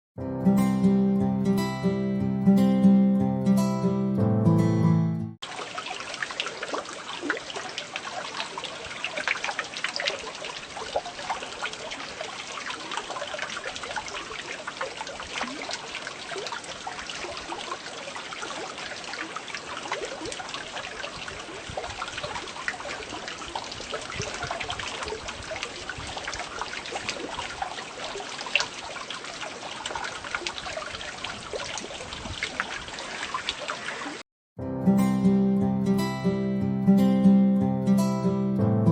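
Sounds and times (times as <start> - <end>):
rain falling: 5.4 - 34.2
water dripping: 5.4 - 34.2.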